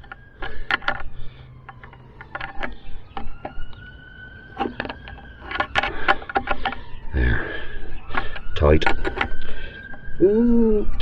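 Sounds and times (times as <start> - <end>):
hand tools clicking on metal: 0.0 - 7.0, 8.0 - 10.1.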